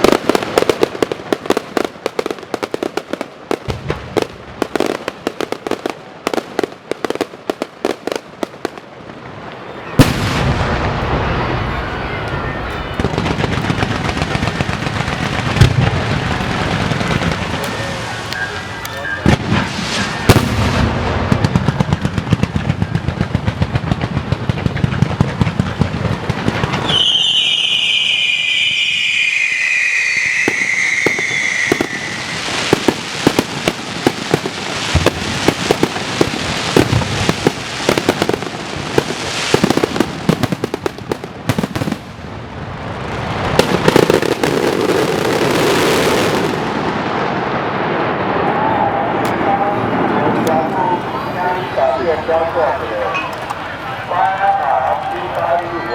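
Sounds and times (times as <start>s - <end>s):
firecrackers popping: 0.0s - 55.9s
high tone falling in pitch: 26.9s - 32.4s.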